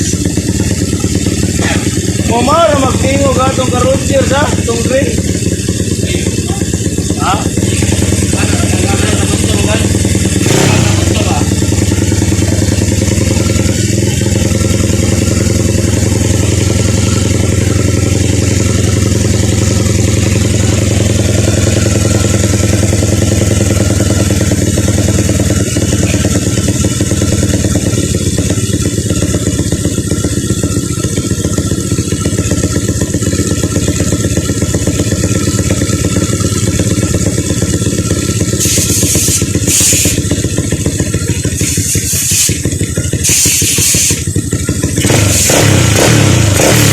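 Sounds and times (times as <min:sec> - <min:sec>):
motorcycle engine running loudly: 0:00.0 - 0:46.9
short hissy bursts: 0:38.6 - 0:40.2, 0:41.6 - 0:42.6, 0:43.2 - 0:44.2.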